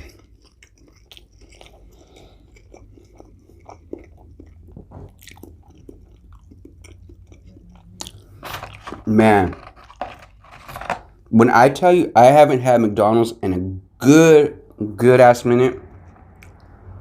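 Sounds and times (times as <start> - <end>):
wet chewing clicks and smacks: 0.0 - 8.4, 16.0 - 16.8
person chewing food: 0.0 - 11.3.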